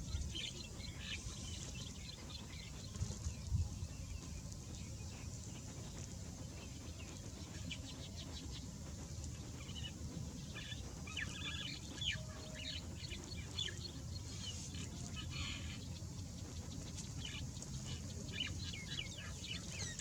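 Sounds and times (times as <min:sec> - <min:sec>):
small birds chirping: 0:00.0 - 0:20.0
steady low rumble: 0:00.0 - 0:20.0.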